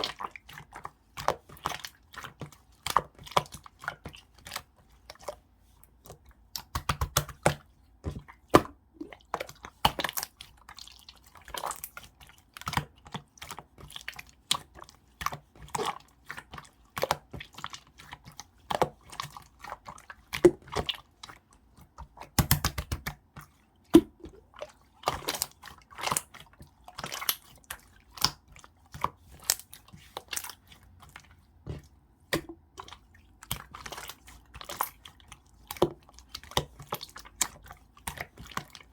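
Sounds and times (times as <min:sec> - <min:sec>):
slime squishing wet clicks: 0:00.0 - 0:38.9.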